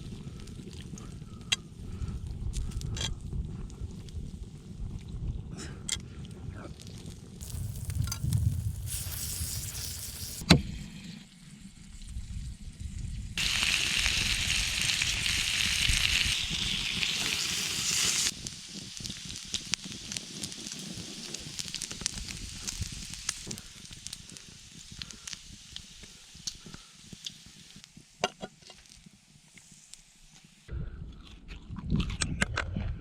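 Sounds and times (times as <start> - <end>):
fire crackling and popping: 0.0 - 10.4, 13.3 - 30.6
food sizzling on hot stone: 6.9 - 10.4, 13.4 - 30.7.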